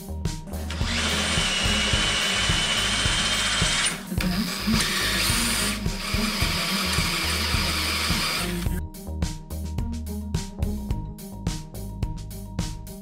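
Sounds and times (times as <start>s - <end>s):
cordless drill whining into steel: 0.6s - 8.8s.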